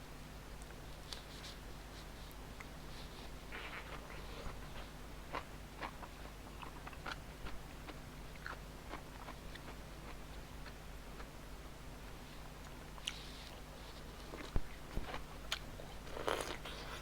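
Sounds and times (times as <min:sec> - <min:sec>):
person chewing food: 0:02.6 - 0:11.4, 0:12.6 - 0:17.0.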